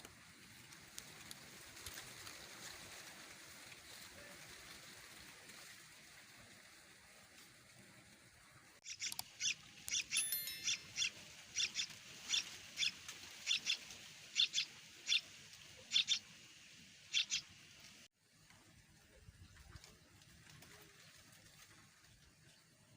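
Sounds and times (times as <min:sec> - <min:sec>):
nestlings begging cheeps: 0:08.8 - 0:15.3, 0:15.9 - 0:16.3, 0:17.1 - 0:17.5.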